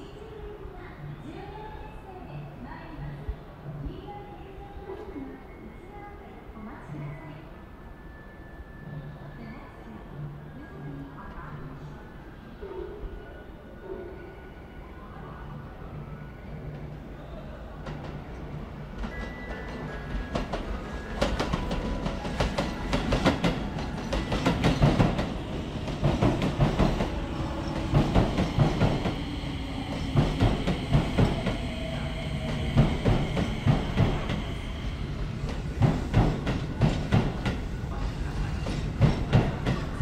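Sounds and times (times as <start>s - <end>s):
train rumble: 16.6s - 40.0s
train wheels clacking over rail joints: 38.6s - 40.0s.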